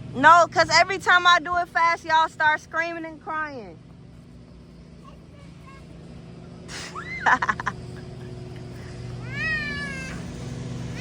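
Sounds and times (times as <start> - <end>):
young children squealing: 6.7 - 7.6, 9.2 - 10.4.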